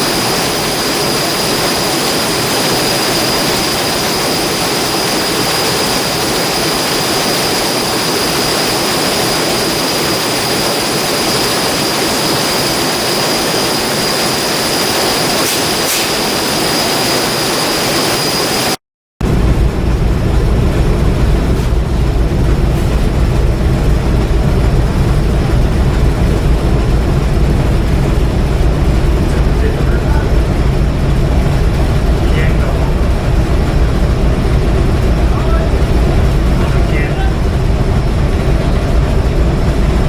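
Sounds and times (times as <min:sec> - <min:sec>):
machinery rush with high whine: 0:00.0 - 0:40.0
deep engine rumble: 0:19.2 - 0:40.0.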